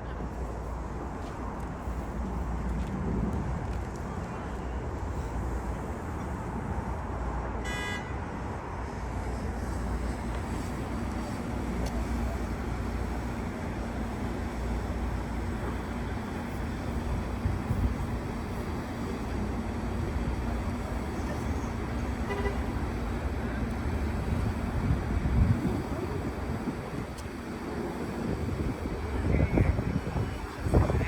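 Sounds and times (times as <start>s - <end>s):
train rumbling: 0.0s - 7.6s, 8.4s - 31.0s
train horn toot: 7.6s - 8.2s, 22.2s - 22.8s.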